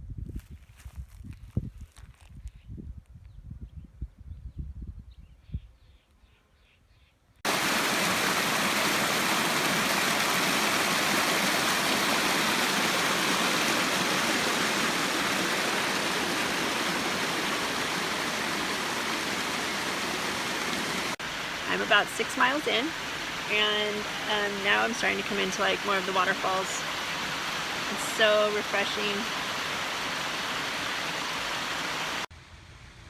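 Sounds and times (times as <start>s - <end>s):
waterfall rushing: 7.5s - 32.3s.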